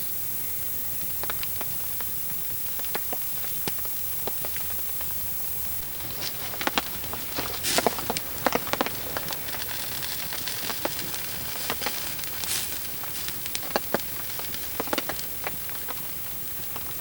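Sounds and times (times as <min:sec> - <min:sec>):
campfire crackling: 0:00.1 - 0:17.0.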